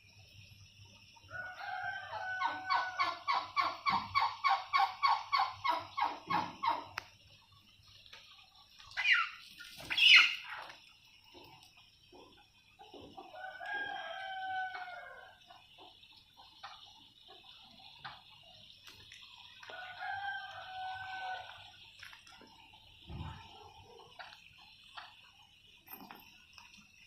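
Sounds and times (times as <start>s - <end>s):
rooster crowing: 1.3s - 3.3s, 13.3s - 15.4s, 19.7s - 21.6s.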